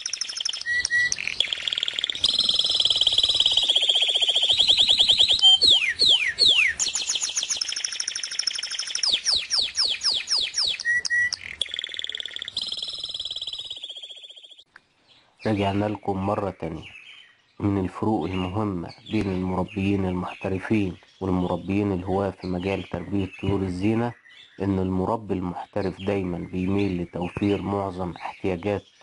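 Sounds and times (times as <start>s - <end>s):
songbird trills and whistles: 0.0s - 14.7s.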